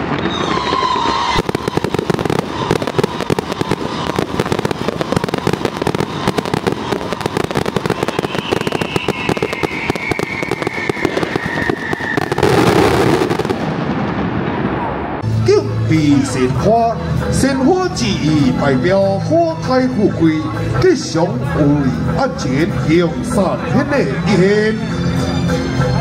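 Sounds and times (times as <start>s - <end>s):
firecrackers crackling: 0.0s - 18.3s.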